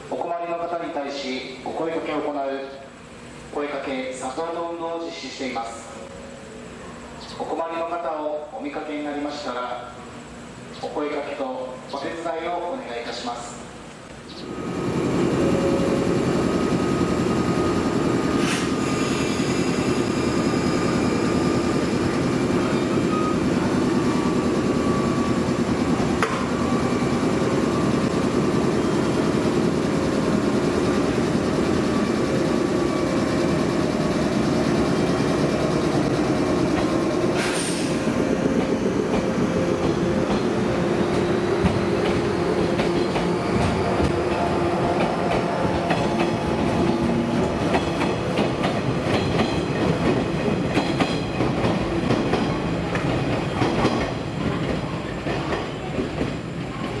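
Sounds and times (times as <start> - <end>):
train wheels rumbling: 14.4 - 57.0.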